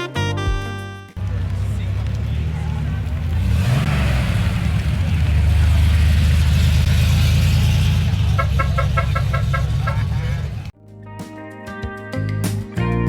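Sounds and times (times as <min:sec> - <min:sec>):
car engine rumbling: 0:01.2 - 0:10.7.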